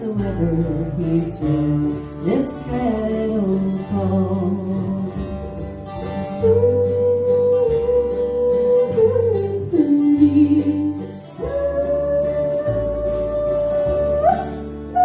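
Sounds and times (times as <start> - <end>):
acoustic guitar: 0.0 - 15.0
bass: 0.0 - 15.0
person yodeling: 6.4 - 15.0.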